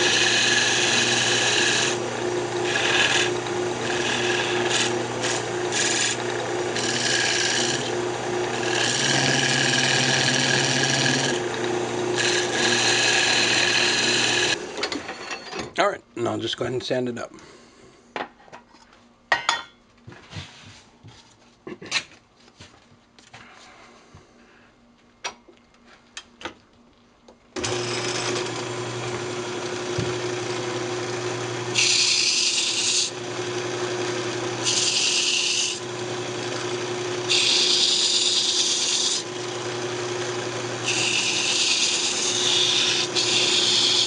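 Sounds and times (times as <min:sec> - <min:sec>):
wood lathe humming: 0:00.0 - 0:15.2, 0:27.6 - 0:44.0.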